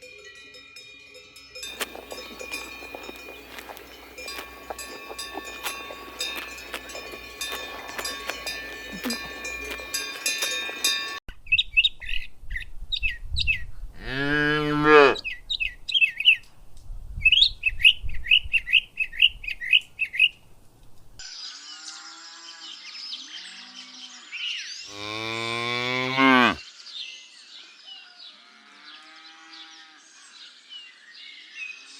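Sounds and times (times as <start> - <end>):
birds calling: 1.7 - 11.2
cows mooing: 1.7 - 11.2, 24.9 - 26.6
small birds chirping: 1.7 - 12.3.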